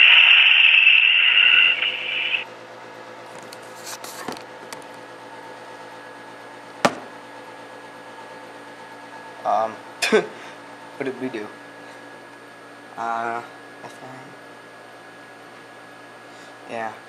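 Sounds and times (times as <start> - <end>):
faint steady hum: 0.0 - 2.5.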